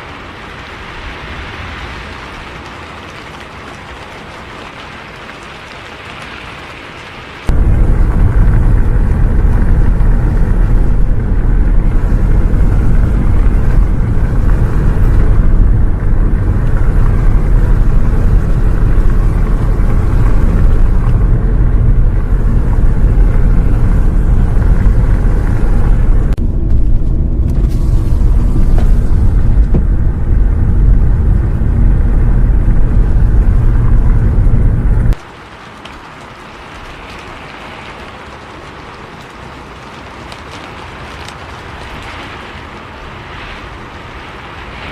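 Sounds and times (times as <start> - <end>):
bus engine rumbling: 7.5 - 35.2.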